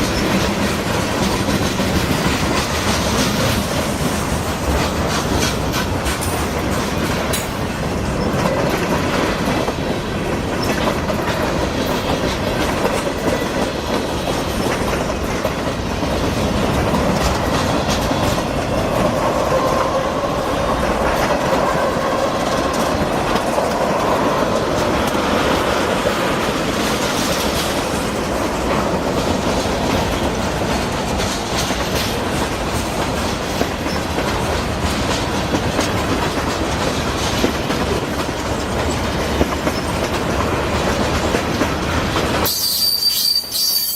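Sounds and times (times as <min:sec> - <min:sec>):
freight train cars rolling: 0:00.0 - 0:43.9
wheels clicking over rail joints: 0:00.0 - 0:43.9.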